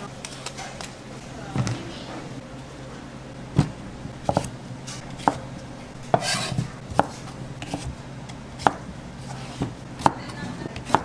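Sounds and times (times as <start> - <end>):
knife chopping on cutting board: 3.6 - 5.4, 6.0 - 8.0, 8.6 - 11.0.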